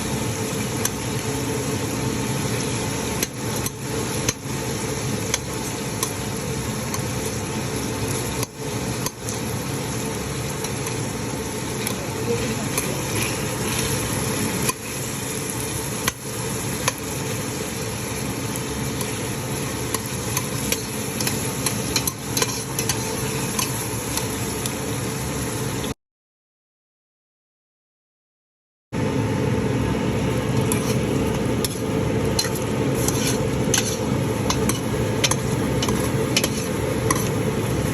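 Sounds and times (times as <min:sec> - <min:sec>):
food sizzling in a frying pan: 0:00.0 - 0:26.0, 0:29.0 - 0:37.9
utensil scraping a pan: 0:12.3 - 0:15.1, 0:19.9 - 0:23.8, 0:30.6 - 0:37.9.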